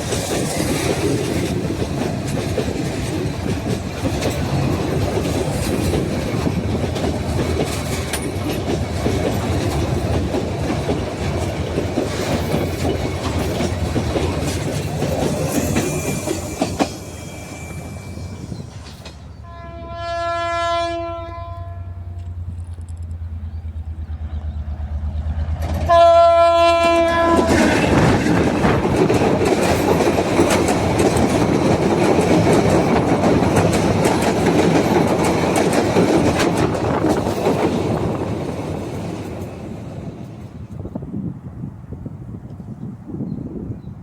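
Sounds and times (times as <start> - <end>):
train wheels clattering on rails: 0.0 - 19.6, 22.1 - 41.0
low locomotive engine hum: 0.0 - 44.0
train horn blast: 19.4 - 22.4, 25.8 - 28.1.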